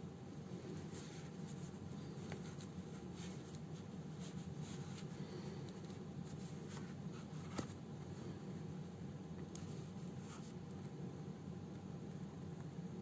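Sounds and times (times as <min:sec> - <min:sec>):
steady low hum: 0:00.0 - 0:13.0
needle and thread through fabric: 0:00.7 - 0:07.7.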